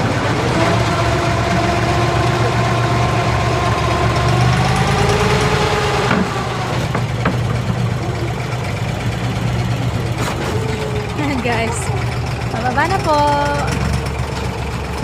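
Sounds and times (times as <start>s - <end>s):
boat engine humming: 0.0s - 15.0s
short knocks: 6.1s - 8.0s.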